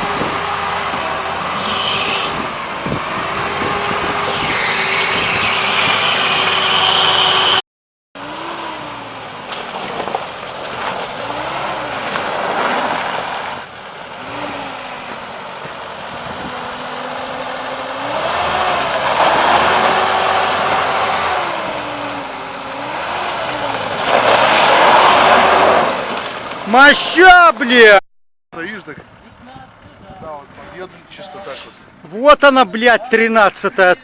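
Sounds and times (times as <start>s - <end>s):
vehicle engine revving: 0.0s - 7.6s, 8.2s - 26.9s.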